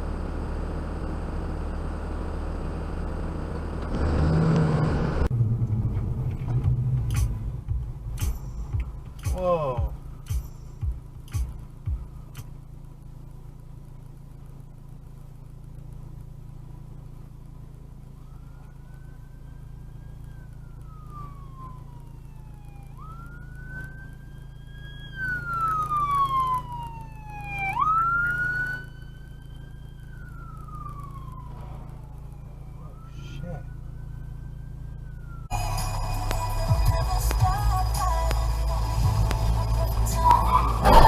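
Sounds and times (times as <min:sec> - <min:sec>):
car engine and road drone: 0:00.0 - 0:41.0
emergency vehicle siren wailing: 0:18.0 - 0:41.0.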